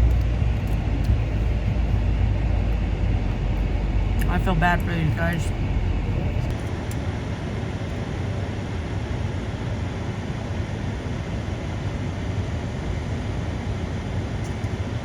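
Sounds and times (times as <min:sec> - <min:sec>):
truck engine idling: 0:00.0 - 0:08.0.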